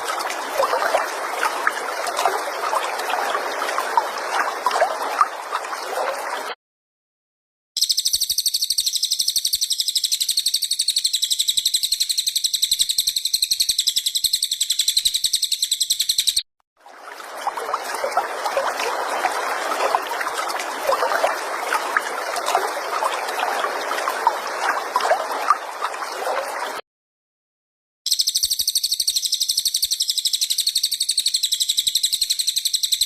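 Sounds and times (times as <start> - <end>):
bird chattering and chirps: 7.8 - 16.4
high-pitched bird trill: 7.8 - 16.4, 28.1 - 33.0.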